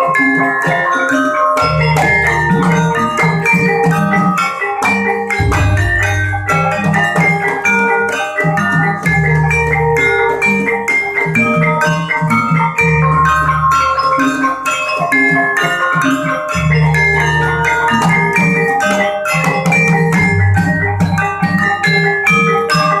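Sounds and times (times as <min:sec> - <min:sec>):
deep sustained tones: 0:05.4 - 0:07.1
drum beats: 0:05.4 - 0:07.5
metallophones ringing: 0:05.4 - 0:07.5.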